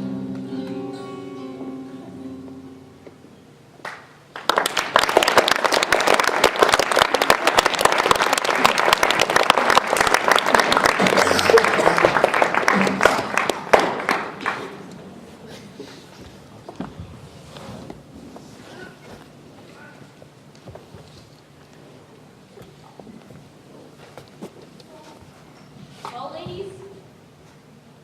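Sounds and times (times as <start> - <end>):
audience applauding: 3.8 - 15.2.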